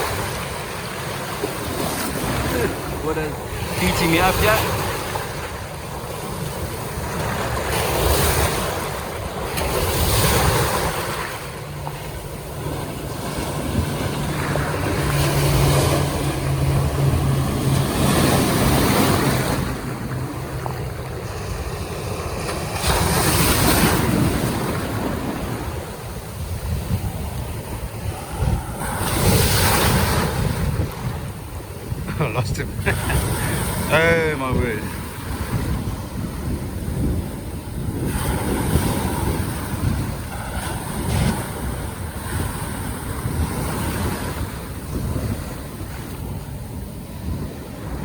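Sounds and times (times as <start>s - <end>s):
surf breaking: 0.0s - 26.2s
boat motor humming: 0.0s - 38.1s
wind buffeting microphone: 0.0s - 48.0s.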